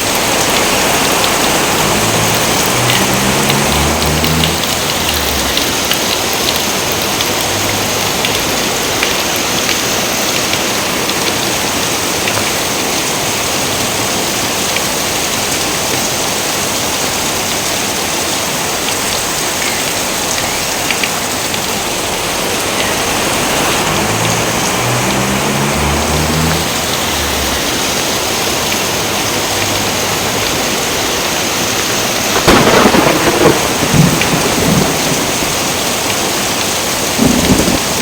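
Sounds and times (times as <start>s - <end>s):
heavy rain: 0.0s - 38.0s.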